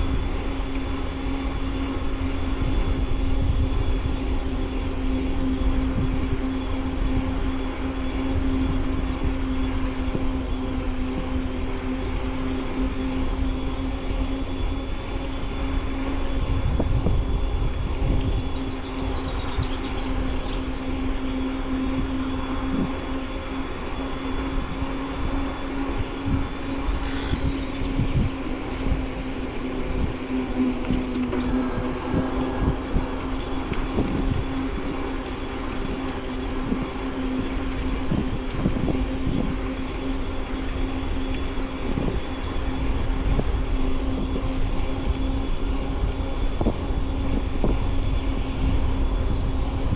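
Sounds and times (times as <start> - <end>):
wind on microphone: 0.0 - 49.9
electric motor whine: 26.9 - 33.0.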